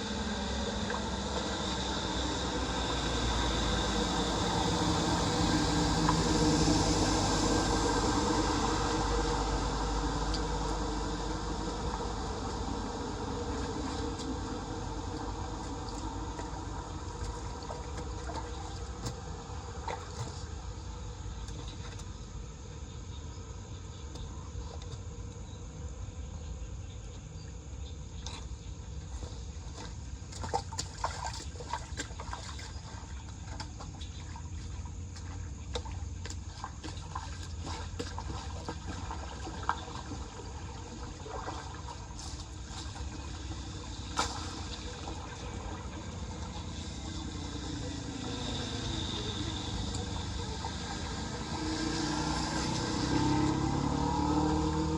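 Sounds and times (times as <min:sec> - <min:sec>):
car engine: 0:00.0 - 0:22.1, 0:42.1 - 0:54.9
water trickling into storm drain: 0:00.0 - 0:25.6, 0:27.2 - 0:54.9.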